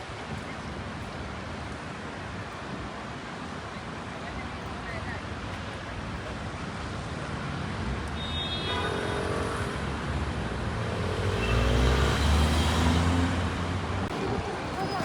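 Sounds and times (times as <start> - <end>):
city street traffic: 0.0 - 15.0
vehicle engine rumble passing: 8.7 - 15.0.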